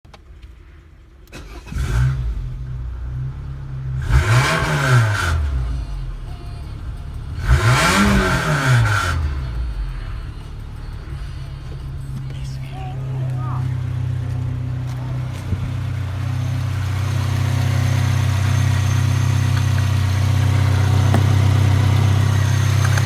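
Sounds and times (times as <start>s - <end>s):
car engine starting and idling: 0.1s - 23.0s
car engine revving: 1.3s - 23.0s.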